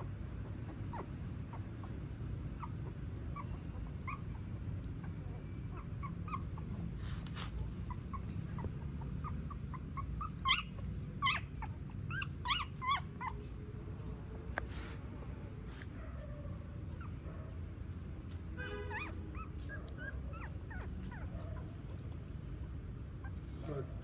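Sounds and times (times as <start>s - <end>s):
puppies whimpering and squeaking: 0.0s - 15.0s, 15.8s - 17.2s, 18.2s - 24.0s
puppies yelping: 0.5s - 14.2s, 18.6s - 24.0s.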